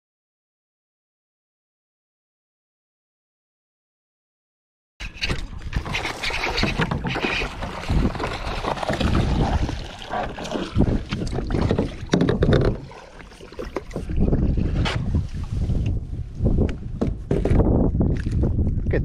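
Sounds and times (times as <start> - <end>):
water splashing around kayak: 5.0 - 17.3, 18.0 - 18.9
wind rumbling on microphone: 5.0 - 19.0
kayak knocks: 5.2 - 15.2.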